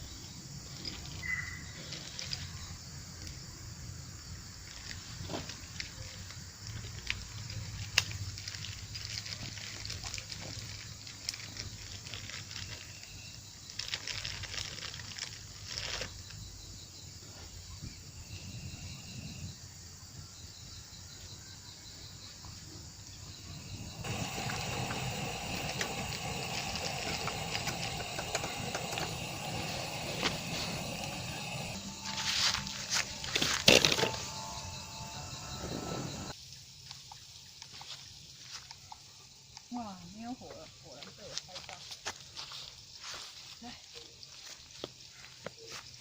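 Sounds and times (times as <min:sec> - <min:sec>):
wood fire crackling and popping: 0:23.6 - 0:34.4.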